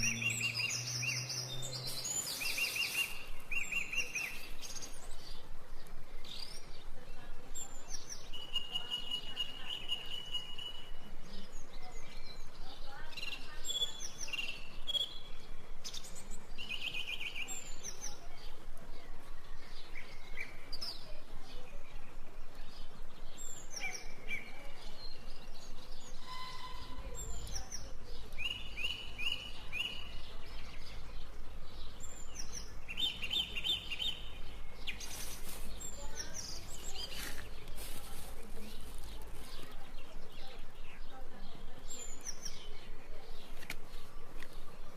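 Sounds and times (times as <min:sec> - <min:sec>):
steady background hiss: 0:00.0 - 0:26.3
birds chirping and calling: 0:00.0 - 0:44.9.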